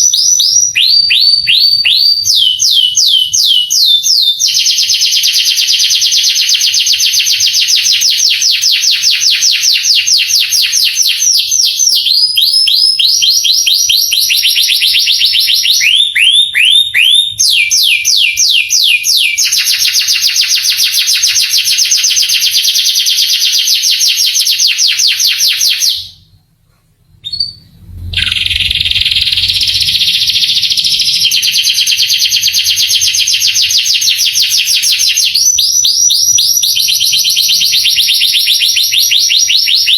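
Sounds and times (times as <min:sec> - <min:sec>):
canary singing trills: 0:00.0 - 0:26.2, 0:27.2 - 0:39.9.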